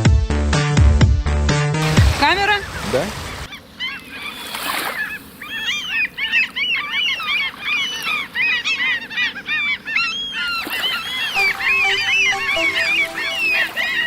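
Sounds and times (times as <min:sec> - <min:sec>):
gulls calling: 0:02.1 - 0:14.0.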